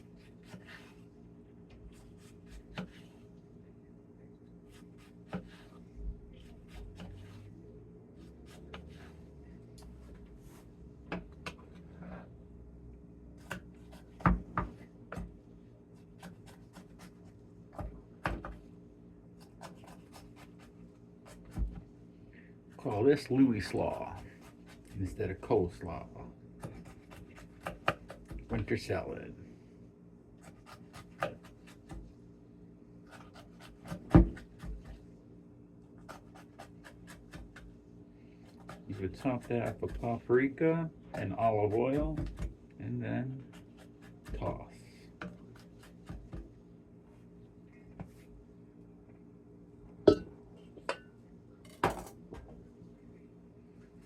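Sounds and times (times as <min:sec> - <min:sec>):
utensil scraping vegetables: 0:36.0 - 0:37.6, 0:38.4 - 0:40.3.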